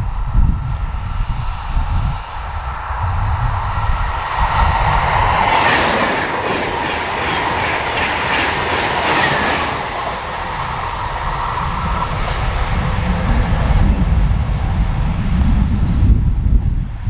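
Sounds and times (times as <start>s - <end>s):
train passing: 0.0s - 17.0s
train wheels clattering: 4.4s - 12.4s.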